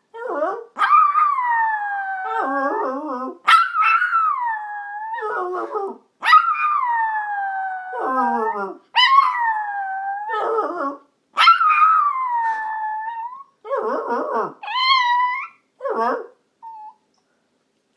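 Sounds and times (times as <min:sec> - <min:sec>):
dog howling: 0:00.8 - 0:13.9.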